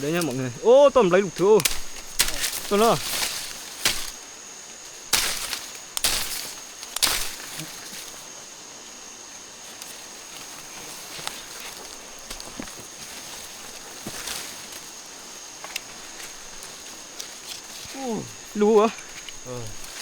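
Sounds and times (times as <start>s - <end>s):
high-pitched insect tone: 0.0s - 20.0s
low outdoor hiss: 0.0s - 20.0s
rustling bursts: 1.5s - 4.2s.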